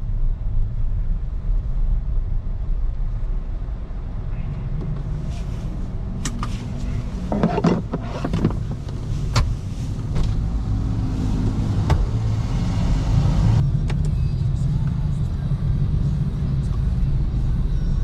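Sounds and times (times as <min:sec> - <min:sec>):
tyre and road noise rumble: 0:00.0 - 0:18.0
sharp clicks and knocks: 0:07.3 - 0:10.4.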